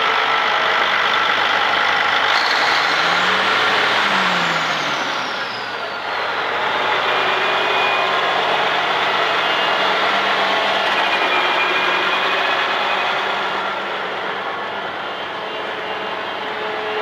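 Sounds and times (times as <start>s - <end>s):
tractor diesel engine running: 2.1s - 7.0s.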